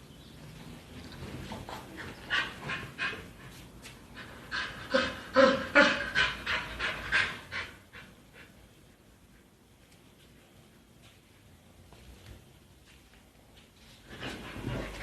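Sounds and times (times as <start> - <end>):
dog panting: 1.6 - 8.6.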